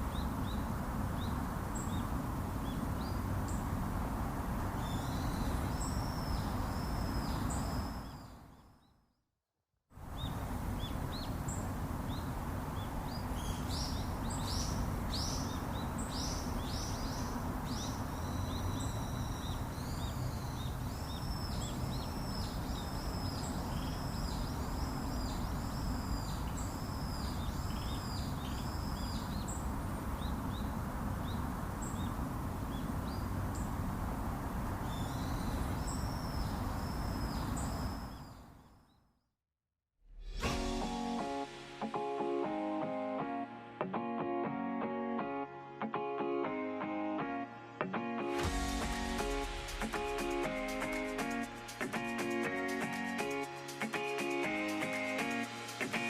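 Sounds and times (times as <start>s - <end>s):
low background noise: 0.0s - 8.7s, 10.0s - 38.9s
songbird singing: 0.0s - 9.0s, 10.1s - 34.1s, 34.7s - 39.1s.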